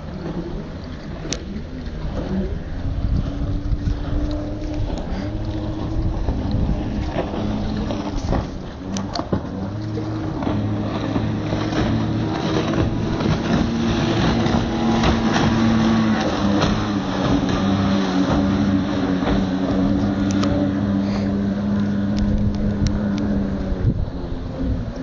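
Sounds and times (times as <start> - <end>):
outboard motor drone: 0.0 - 25.0.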